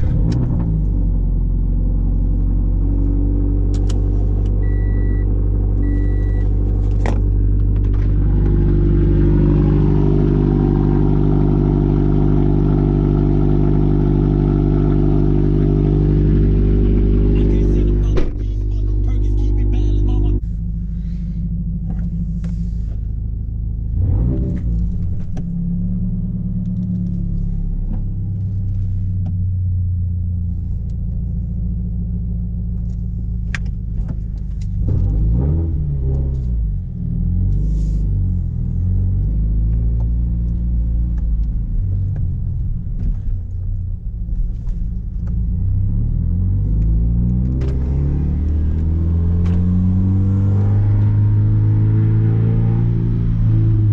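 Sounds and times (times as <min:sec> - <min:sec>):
car engine drone revving: 0:00.0 - 0:53.9
exhaust cracks: 0:06.4 - 0:29.4.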